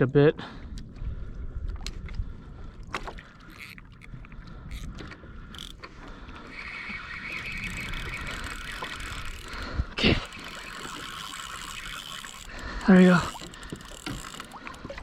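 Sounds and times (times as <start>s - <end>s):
fishing reel ratchet clicking: 3.0s - 15.0s.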